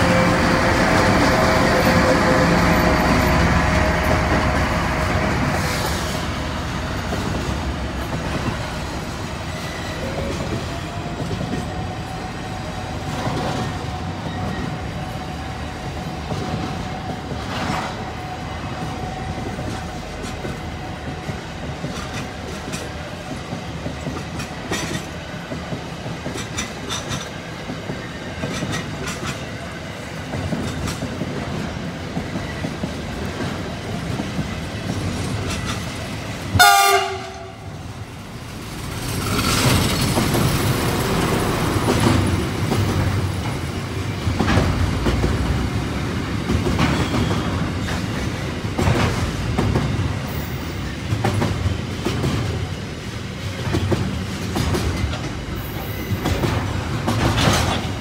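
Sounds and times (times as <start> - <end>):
train horn blast: 0.0 - 4.3, 36.6 - 37.8
freight train wheels clattering: 0.0 - 58.0
train rumbling on tracks: 0.0 - 58.0.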